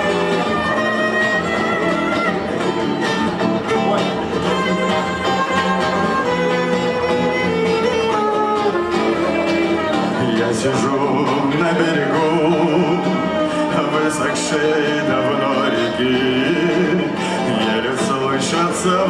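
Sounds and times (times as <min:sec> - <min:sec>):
guitar accompaniment: 0:00.0 - 0:19.0
violin melody: 0:00.0 - 0:19.0.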